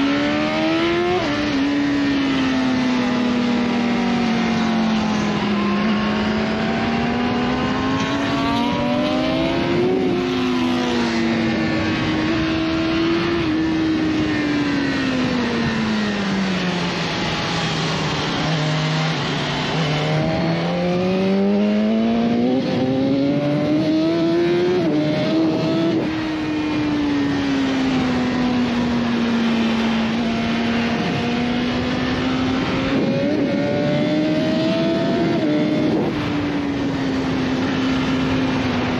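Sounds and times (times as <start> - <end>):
motorcycle engine accelerating: 0.0 - 38.9
wind noise: 0.0 - 38.9.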